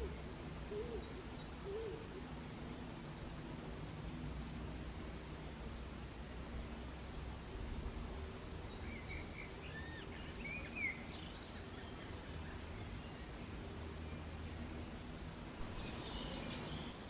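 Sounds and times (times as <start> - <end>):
small birds chirping: 14.2 - 17.0.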